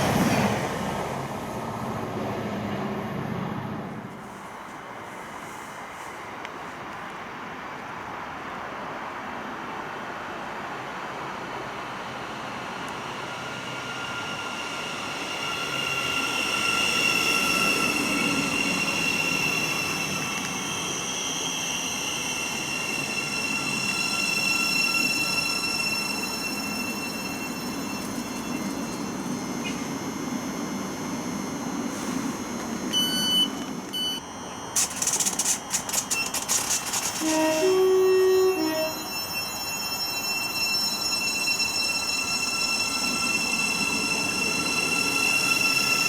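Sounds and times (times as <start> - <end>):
train rumbling along track: 0.0 - 46.0
high-pitched whine: 11.6 - 46.0.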